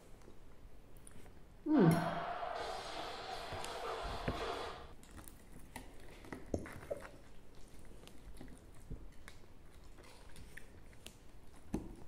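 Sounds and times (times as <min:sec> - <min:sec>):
person chewing food: 0:04.9 - 0:12.0.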